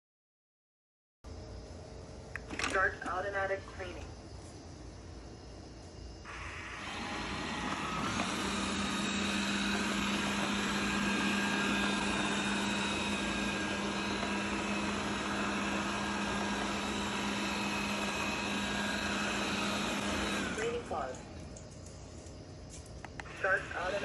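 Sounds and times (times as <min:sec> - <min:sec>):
robot vacuum cleaner whirring: 0:06.3 - 0:21.4.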